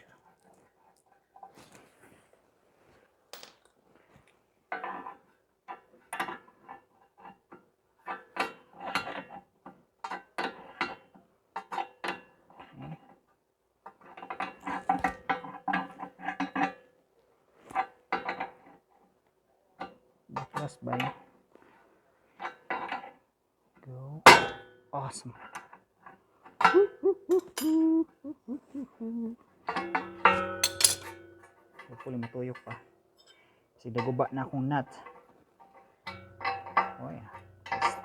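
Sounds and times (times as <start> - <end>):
metal hand tools clinking: 3.4 - 3.7, 27.3 - 27.8, 30.3 - 31.3.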